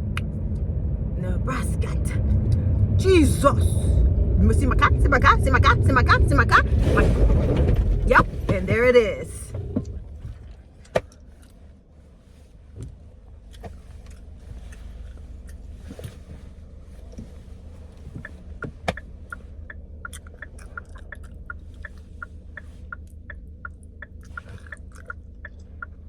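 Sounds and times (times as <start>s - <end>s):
car engine and tyres rumbling: 0.0s - 26.0s
small ticks: 18.1s - 26.0s.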